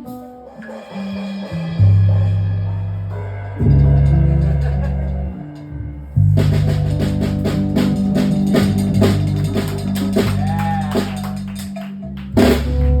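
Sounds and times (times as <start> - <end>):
drum strokes: 0.0 - 13.0
bass notes: 1.4 - 13.0
live rock band playing: 3.2 - 13.0.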